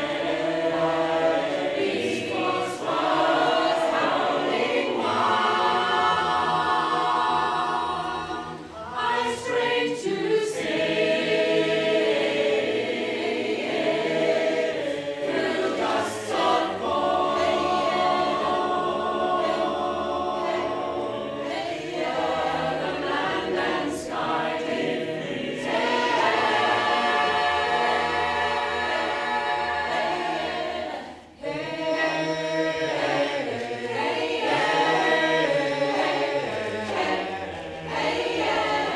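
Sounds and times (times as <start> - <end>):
choir singing in harmony: 0.0 - 38.9.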